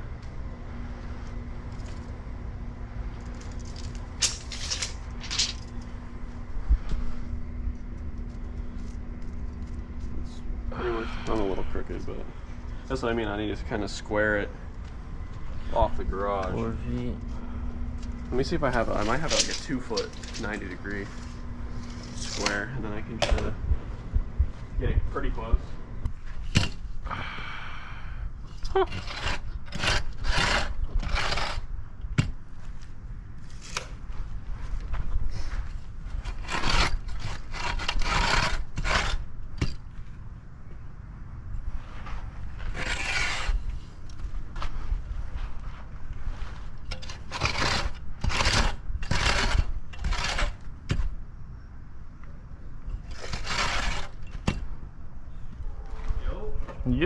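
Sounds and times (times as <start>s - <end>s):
steady low rumble: 0.0s - 54.0s
rough scraping strokes: 18.4s - 22.7s, 28.8s - 31.7s, 35.4s - 39.3s, 41.7s - 44.0s, 45.4s - 50.7s, 52.9s - 54.6s.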